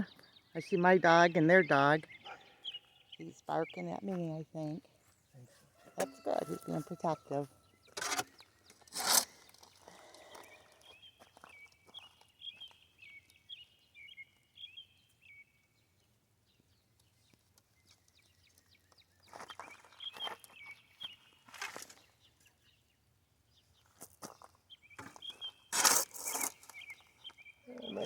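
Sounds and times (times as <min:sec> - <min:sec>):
small birds chirping: 0:00.0 - 0:28.0
scraping and rustling: 0:08.0 - 0:09.8, 0:25.0 - 0:26.9.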